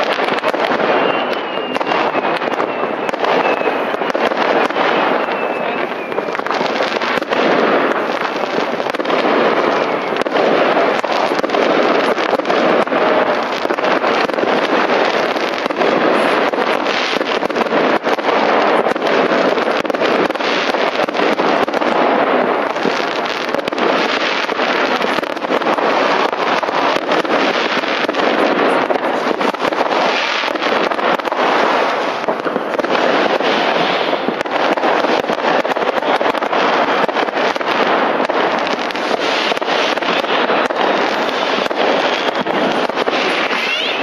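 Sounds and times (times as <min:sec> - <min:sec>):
fireworks crackling and banging: 0:00.0 - 0:44.0.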